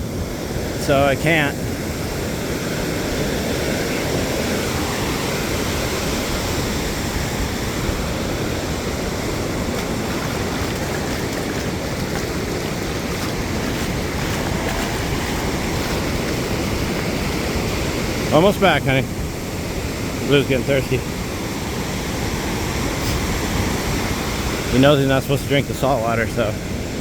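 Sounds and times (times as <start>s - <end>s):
ocean surf breaking: 0.0s - 27.0s
wind on microphone: 1.6s - 18.3s, 21.1s - 24.8s.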